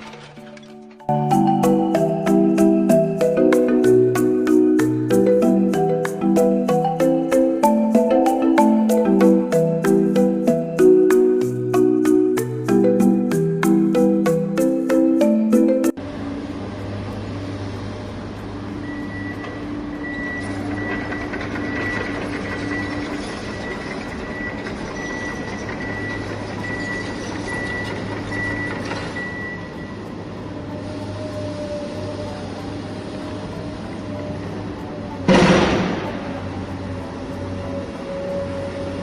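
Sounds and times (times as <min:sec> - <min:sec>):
vehicle engine humming: 0:00.0 - 0:39.0
reversing alarm beeping: 0:18.8 - 0:30.2.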